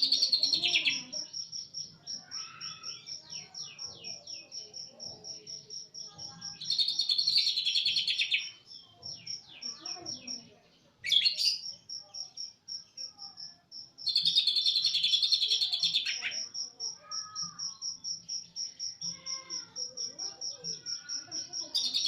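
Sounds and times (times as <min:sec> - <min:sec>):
bird rapid-fire song bursts: 0:06.0 - 0:16.5.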